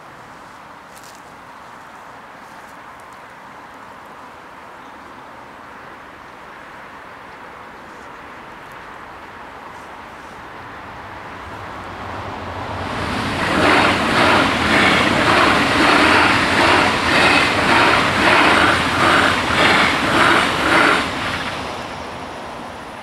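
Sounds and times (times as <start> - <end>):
train passing at speed: 4.6 - 23.0
wheels clattering on track: 12.7 - 22.1.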